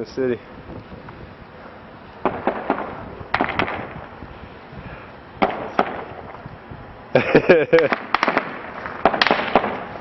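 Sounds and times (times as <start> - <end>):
gunshots: 2.2 - 4.0, 5.4 - 6.1, 7.9 - 9.9.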